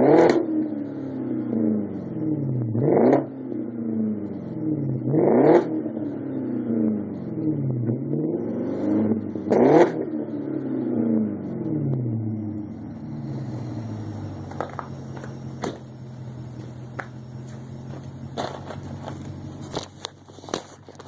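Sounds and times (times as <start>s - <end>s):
car exhaust idling: 11.3s - 21.0s
exhaust clicks and crackles: 11.6s - 21.0s.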